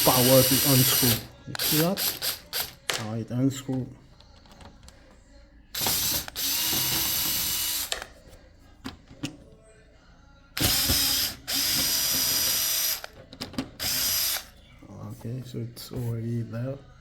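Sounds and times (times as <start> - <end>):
electric screwdriver running: 0.0 - 2.9, 5.8 - 8.1, 10.6 - 13.2, 13.8 - 14.5.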